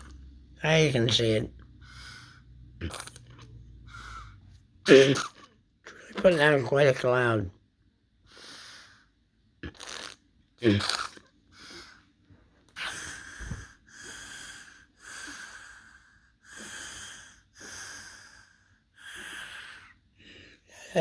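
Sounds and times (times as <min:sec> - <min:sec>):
person breathing heavily: 0:01.8 - 0:02.7, 0:03.8 - 0:04.6, 0:12.8 - 0:21.0.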